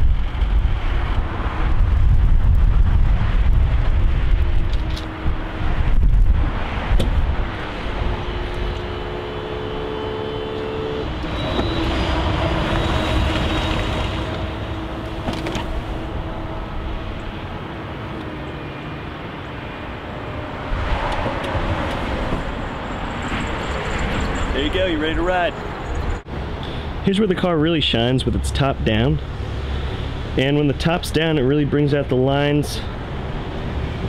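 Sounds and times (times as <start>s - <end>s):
low rumble: 0.0s - 9.1s.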